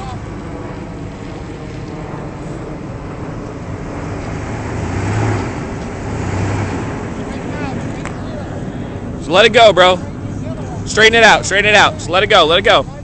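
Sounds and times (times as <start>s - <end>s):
truck engine running under load: 0.2s - 9.2s.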